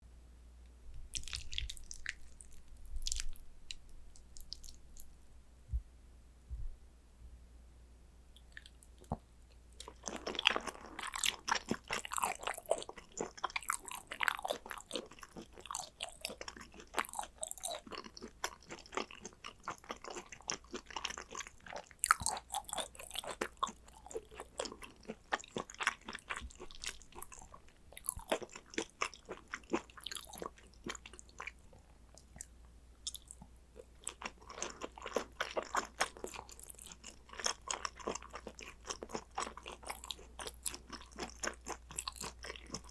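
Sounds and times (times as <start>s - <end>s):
wet mouth noises: 1.0s - 5.2s
chewing and biting food: 1.1s - 5.2s, 9.8s - 42.9s.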